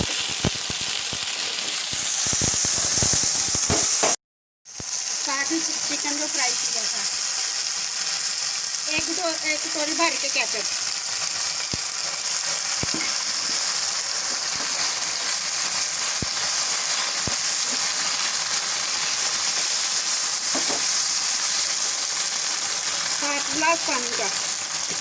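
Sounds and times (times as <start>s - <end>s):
vegetables sizzling in a pan: 0.0s - 25.0s
spoon knocking against pan: 12.8s - 13.2s, 20.5s - 20.9s.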